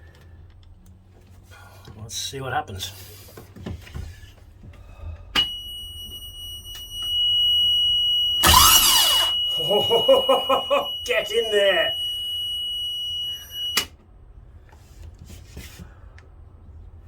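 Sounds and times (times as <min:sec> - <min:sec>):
high-pitched warning buzzer: 0:05.4 - 0:13.9
starter motor whirring: 0:06.7 - 0:09.5
diesel engine turning over: 0:08.4 - 0:10.1.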